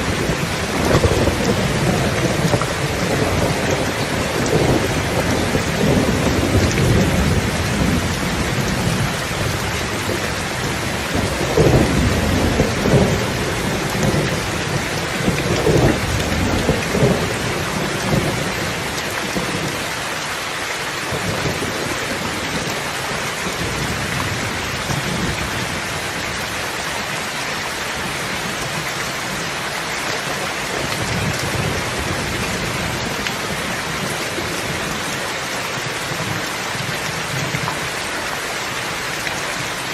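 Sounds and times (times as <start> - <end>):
rolling thunder rumbling: 0.0 - 19.8, 30.3 - 37.9
heavy rain hissing: 0.0 - 39.9.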